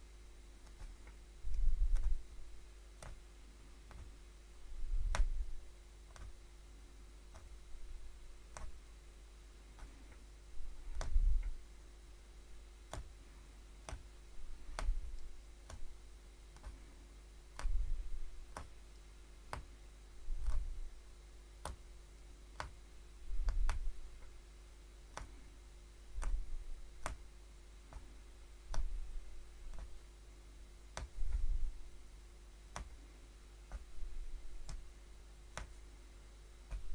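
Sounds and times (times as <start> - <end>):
punch needle clicking through fabric: 0.6 - 6.4, 7.3 - 8.9, 9.7 - 11.6, 12.5 - 13.2, 13.8 - 21.0, 21.6 - 21.9, 22.5 - 24.4, 25.1 - 25.5, 26.1 - 30.0, 30.9 - 32.0, 32.7 - 35.9, 36.6 - 36.9
dull low thuds: 0.8 - 3.2, 10.5 - 11.6, 13.9 - 16.0, 31.0 - 32.0.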